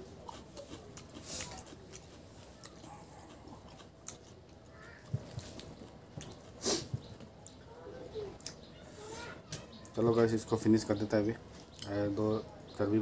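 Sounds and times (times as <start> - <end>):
person chewing food: 0.0 - 7.8.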